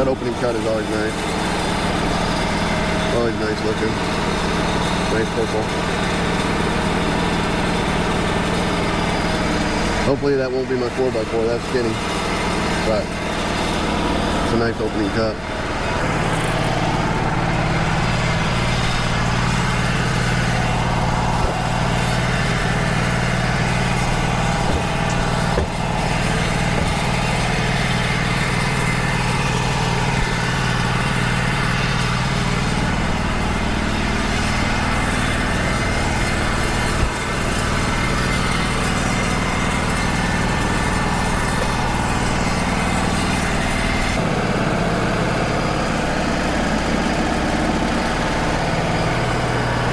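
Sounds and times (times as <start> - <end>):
band sawmill droning: 0.0 - 49.9.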